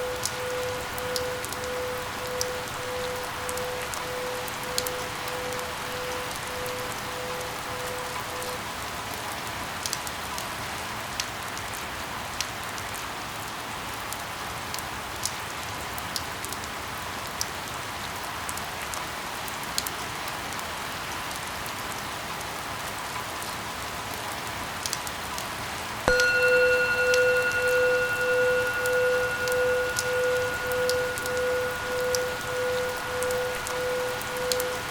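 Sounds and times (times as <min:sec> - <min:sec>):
electronic tone: 0:00.0 - 0:08.6, 0:26.1 - 0:34.9
steady rain falling: 0:00.0 - 0:34.9.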